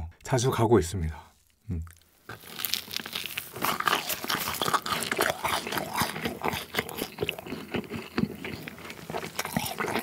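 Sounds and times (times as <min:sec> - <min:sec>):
wet chewing clicks and smacks: 0:01.8 - 0:10.0.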